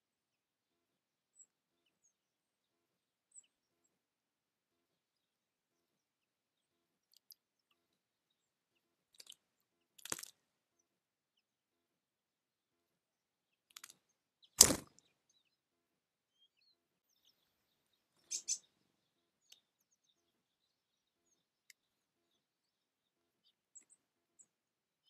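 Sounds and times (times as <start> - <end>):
birds chirping: 0.8 - 25.0.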